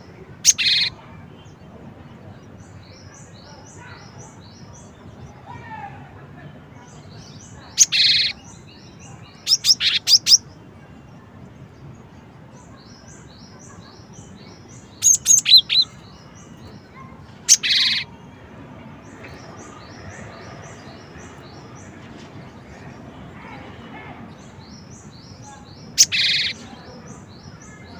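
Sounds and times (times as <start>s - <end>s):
high chirps of another bird: 0.4s - 1.0s, 7.7s - 8.7s, 9.3s - 10.5s, 14.9s - 16.8s, 17.5s - 18.1s, 25.0s - 26.7s
bird calling buzzy and sharp notes: 25.9s - 26.6s.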